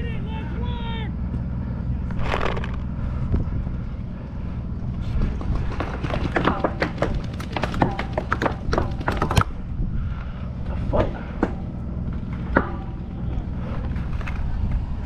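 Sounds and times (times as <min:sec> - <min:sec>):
wind on microphone: 0:08.5 - 0:11.3, 0:13.5 - 0:15.0.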